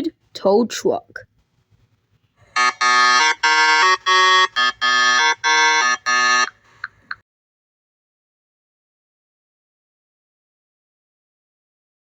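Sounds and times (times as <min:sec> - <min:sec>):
horn notes of changing pitch: 0:02.6 - 0:06.5.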